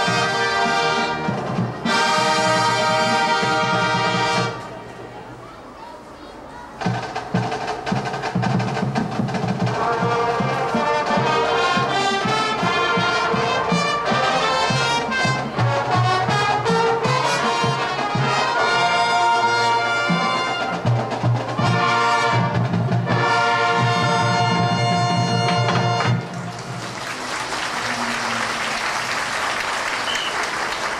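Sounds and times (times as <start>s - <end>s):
marching band brass: 0.0s - 5.1s, 6.7s - 30.9s
percussion: 6.6s - 30.9s.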